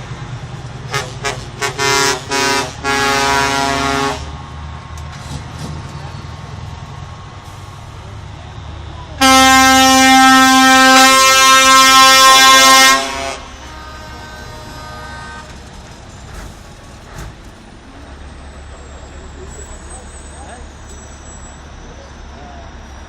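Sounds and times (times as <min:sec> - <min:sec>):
truck engines rumbling: 0:00.0 - 0:23.0
fainter horn: 0:00.9 - 0:04.3, 0:09.2 - 0:15.6
truck air horn blasting: 0:00.9 - 0:04.3, 0:09.2 - 0:15.6.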